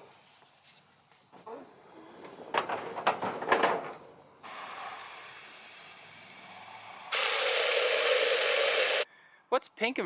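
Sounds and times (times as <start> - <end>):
spraying water hiss: 4.4 - 9.1.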